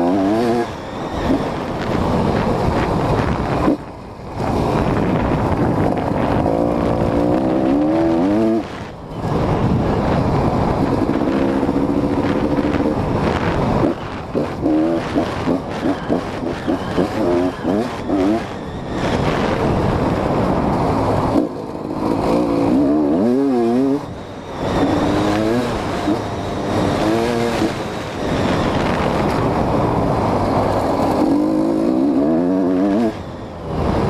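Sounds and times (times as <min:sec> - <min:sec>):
two-stroke engine revving: 0:00.0 - 0:03.8, 0:04.4 - 0:34.0.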